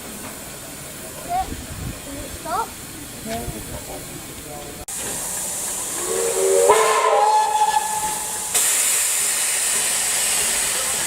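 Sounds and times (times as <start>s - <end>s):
escaping steam hissing: 0.0s - 11.0s
steam locomotive whistle: 5.7s - 10.9s.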